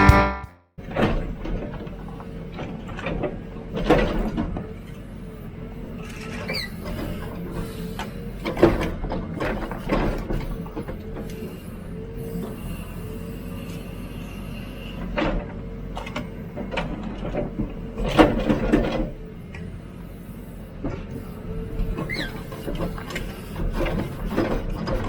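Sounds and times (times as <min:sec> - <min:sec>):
diesel engine running: 0:00.0 - 0:00.5, 0:01.1 - 0:25.0
steady whine: 0:00.0 - 0:00.5.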